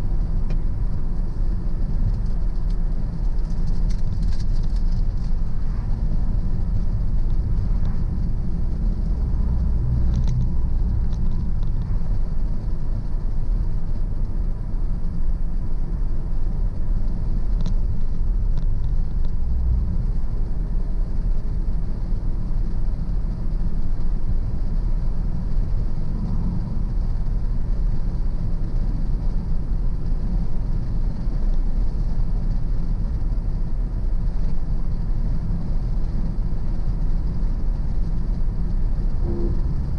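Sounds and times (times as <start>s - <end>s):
car engine and tyres rumbling: 0.0s - 39.9s
faint ticks: 17.0s - 19.5s.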